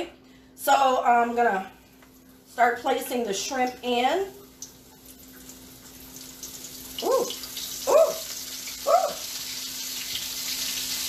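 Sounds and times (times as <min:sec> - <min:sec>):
shrimp sizzling in oil: 0:05.4 - 0:11.0.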